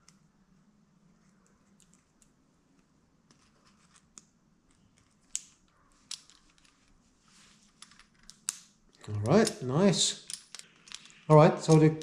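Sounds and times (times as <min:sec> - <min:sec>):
light clicks of parts: 0:07.7 - 0:12.0.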